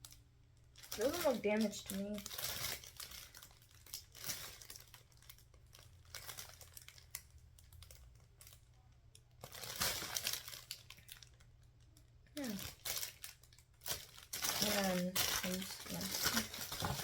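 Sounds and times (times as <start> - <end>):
packaging crinkling: 0.0 - 17.0.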